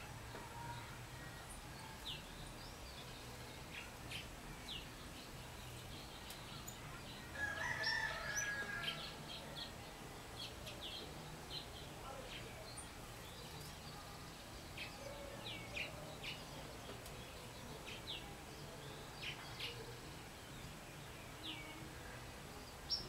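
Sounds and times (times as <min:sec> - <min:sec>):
songbirds chirping: 0:00.0 - 0:23.0
rooster crowing: 0:07.4 - 0:09.2.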